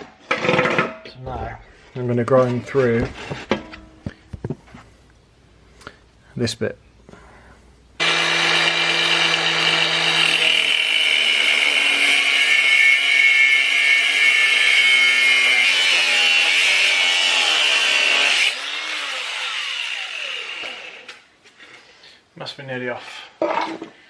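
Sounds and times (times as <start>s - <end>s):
angle grinder cutting metal: 8.0s - 21.3s.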